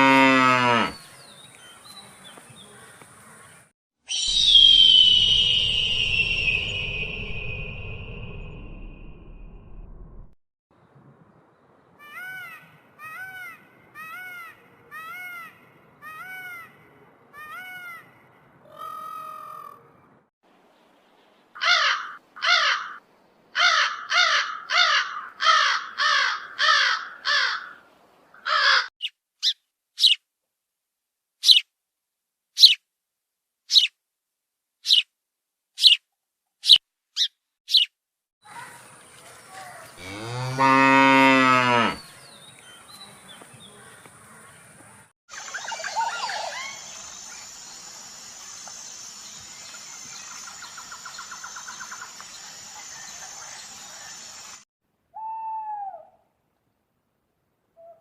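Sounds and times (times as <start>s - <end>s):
cow mooing: 0.0s - 1.0s, 40.0s - 42.1s
thin high chirps: 4.1s - 9.2s
harsh caw-like calls: 21.6s - 23.0s, 23.6s - 27.8s, 28.4s - 28.9s.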